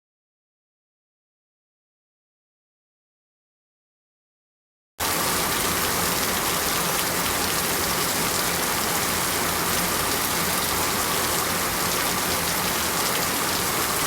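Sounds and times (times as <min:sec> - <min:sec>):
rain falling: 0:05.0 - 0:14.0.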